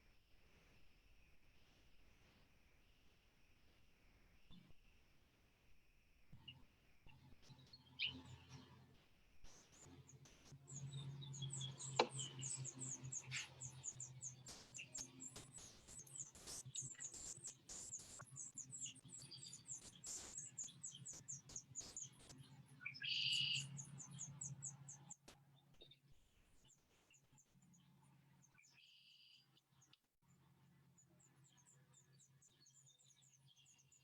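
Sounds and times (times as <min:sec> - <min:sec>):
songbirds chirping: 0:06.4 - 0:08.8, 0:09.7 - 0:34.0.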